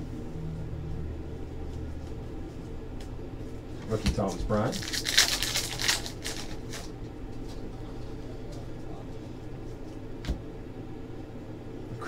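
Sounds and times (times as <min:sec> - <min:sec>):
faint steady hum: 0:00.0 - 0:12.0
trading cards rustling and slapping: 0:03.9 - 0:06.9.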